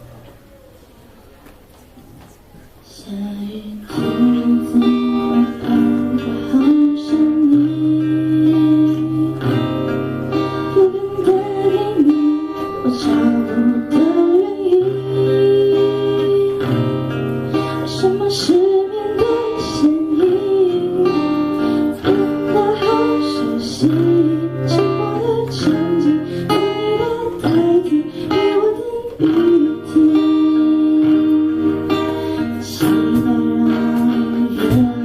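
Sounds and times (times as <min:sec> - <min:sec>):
acoustic guitar strumming chords: 0:03.8 - 0:35.0.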